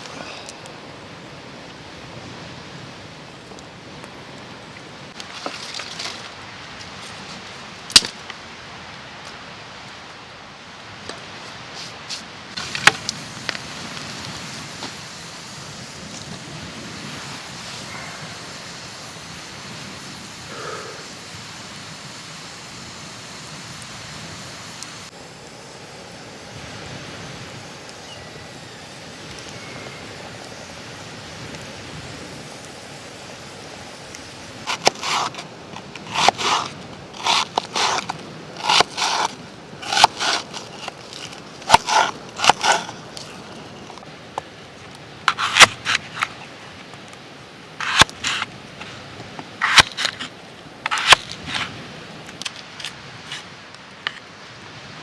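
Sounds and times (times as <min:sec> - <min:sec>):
campfire crackling and popping: 0:07.8 - 0:08.5, 0:12.5 - 0:54.5.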